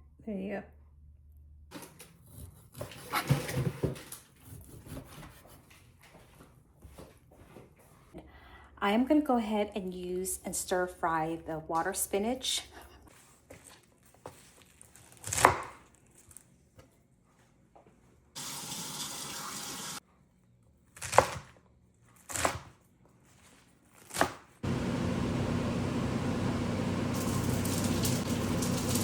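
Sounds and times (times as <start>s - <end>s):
kitchen tap running: 18.4s - 20.0s, 24.6s - 29.0s.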